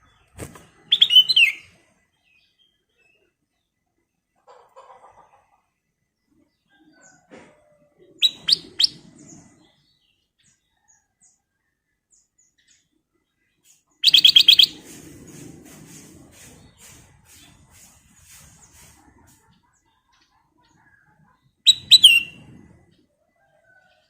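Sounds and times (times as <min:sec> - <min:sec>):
bird whistled notes and chatter: 0:00.9 - 0:01.7, 0:08.2 - 0:09.0, 0:14.0 - 0:14.8, 0:21.7 - 0:22.4.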